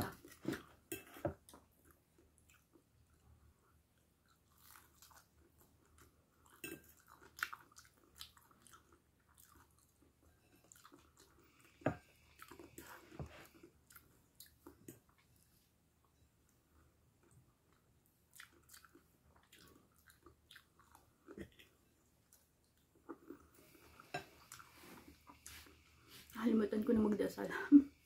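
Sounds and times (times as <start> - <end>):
faint chewing and crunching: 0.0 - 26.8.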